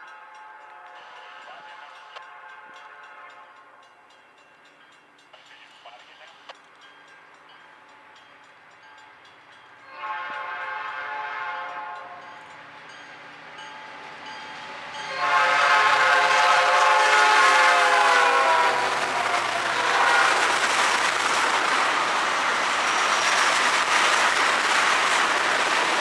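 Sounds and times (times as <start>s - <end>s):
train passing: 0.0s - 26.0s
locomotive air horn blasts: 9.9s - 12.2s, 15.1s - 20.5s.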